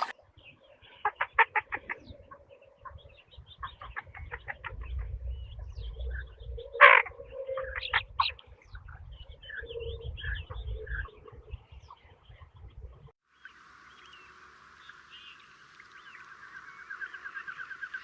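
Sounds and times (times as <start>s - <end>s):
small birds chirping: 0.0s - 18.0s
chickens clucking: 1.0s - 8.4s
chicken squawk: 6.8s - 8.4s.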